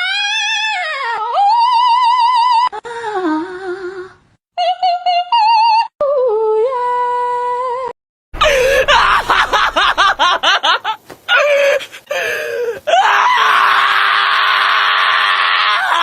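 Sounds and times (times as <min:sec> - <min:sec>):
rasping screaming voice: 0:08.4 - 0:10.3, 0:12.2 - 0:16.0.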